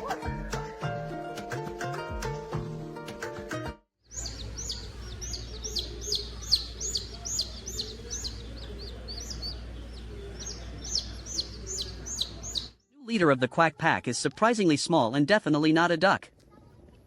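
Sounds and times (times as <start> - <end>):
music: 0.0 - 3.9
small birds chirping: 4.0 - 13.0.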